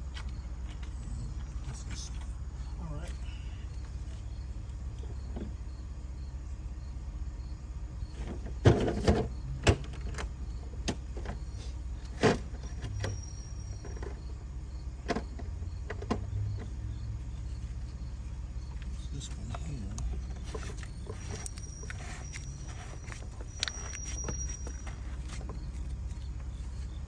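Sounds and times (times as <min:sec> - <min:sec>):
steady low hum: 0:00.0 - 0:09.7, 0:10.3 - 0:27.0
tools clicking and clunking: 0:17.8 - 0:27.0.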